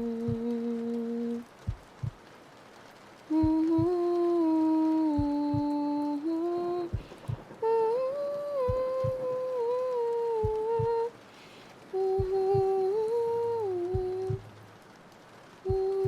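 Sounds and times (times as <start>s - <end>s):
heartbeat thumping: 0.0s - 0.6s, 1.6s - 2.2s, 3.4s - 4.0s, 5.2s - 5.8s, 6.9s - 7.6s, 8.7s - 9.3s, 10.4s - 11.1s, 12.2s - 12.9s, 13.9s - 14.5s, 15.7s - 16.0s
woman humming a lullaby: 0.0s - 1.5s, 3.3s - 11.1s, 11.9s - 14.4s, 15.7s - 16.0s.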